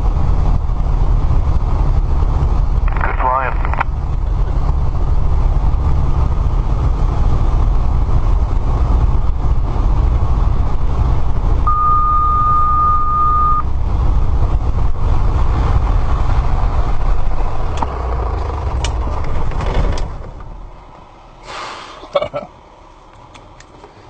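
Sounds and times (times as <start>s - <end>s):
steady beep: 11.7s - 13.7s.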